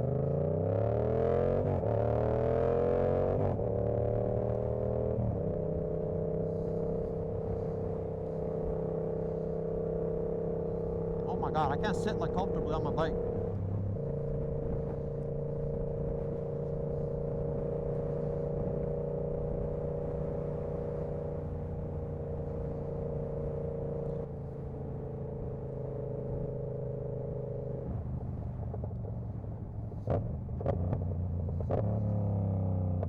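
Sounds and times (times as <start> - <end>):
motorcycle engine running steadily: 3.0 - 33.0.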